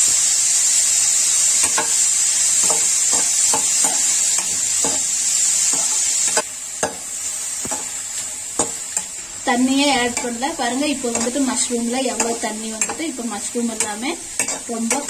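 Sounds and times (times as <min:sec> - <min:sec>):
vegetables sizzling in oil: 0:00.0 - 0:15.0
metal spoon scraping a pan: 0:01.5 - 0:07.0, 0:11.0 - 0:15.0.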